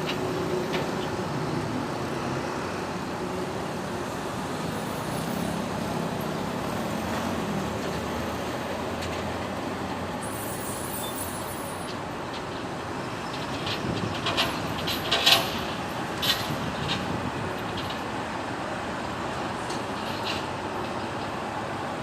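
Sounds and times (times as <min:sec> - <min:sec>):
city street traffic: 0:00.0 - 0:22.0.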